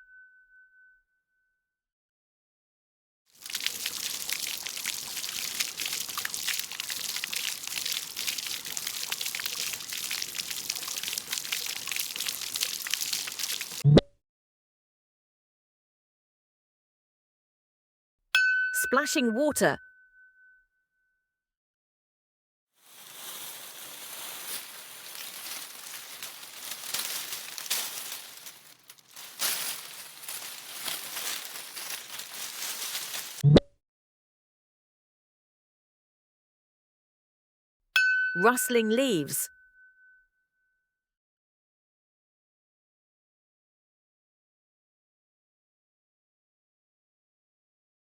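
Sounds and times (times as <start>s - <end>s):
water splashing and pouring: 3.4s - 13.8s, 22.8s - 33.4s.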